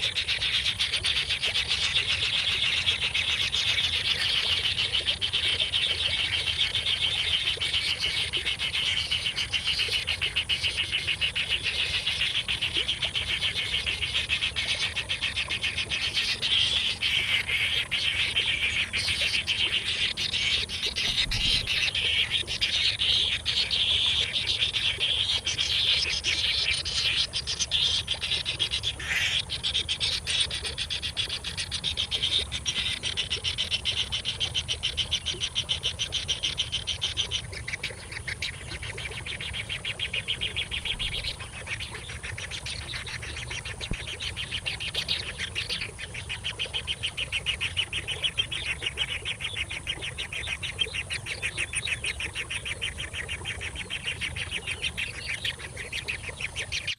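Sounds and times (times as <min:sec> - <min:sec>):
nestling birds chirping: 0:12.8 - 0:56.9.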